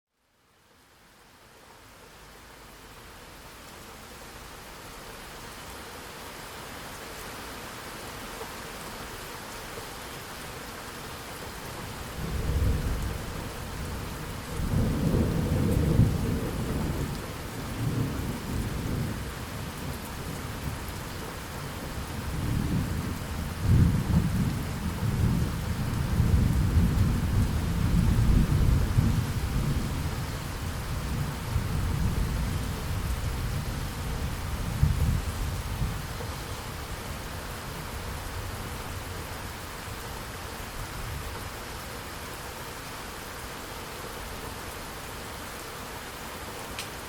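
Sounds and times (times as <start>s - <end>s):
deep rumbling thunder: 12.2s - 19.2s, 22.3s - 30.1s.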